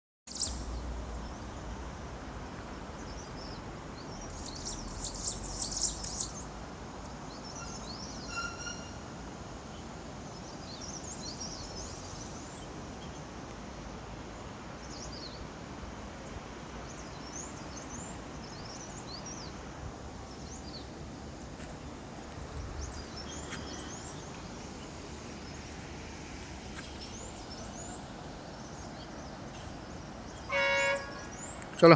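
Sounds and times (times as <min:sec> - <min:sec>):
outdoor background hiss: 0:00.3 - 0:31.9
birds chirping: 0:16.8 - 0:31.9.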